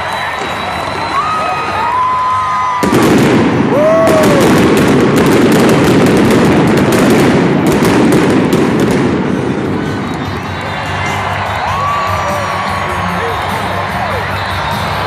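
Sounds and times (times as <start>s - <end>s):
crowd whooping and cheering: 0.0s - 4.9s, 8.8s - 15.0s.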